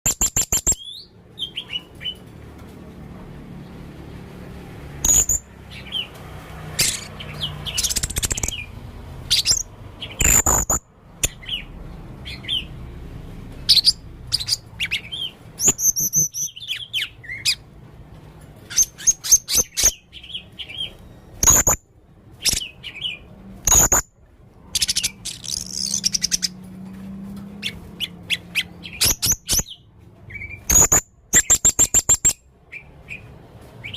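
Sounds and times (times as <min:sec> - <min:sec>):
parrot calling: 0:05.0 - 0:06.1, 0:06.8 - 0:12.8.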